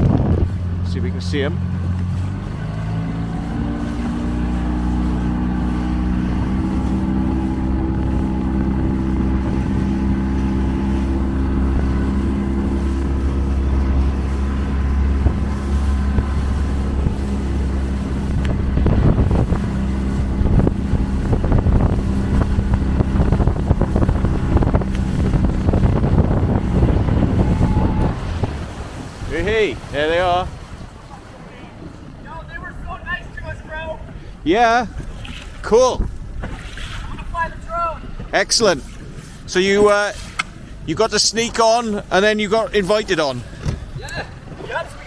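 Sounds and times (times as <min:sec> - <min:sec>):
motorboat engine running: 0:00.0 - 0:45.0
wind and water rushing: 0:00.0 - 0:45.0
knocks against boat: 0:43.4 - 0:44.8.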